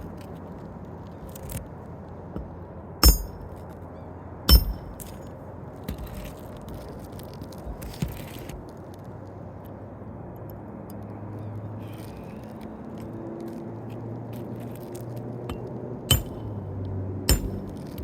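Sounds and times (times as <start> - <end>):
sharp metal-on-metal strikes: 3.0 - 3.5, 4.5 - 5.2, 15.5 - 16.6, 17.3 - 18.0
shingles scraping and rustling: 4.8 - 8.8.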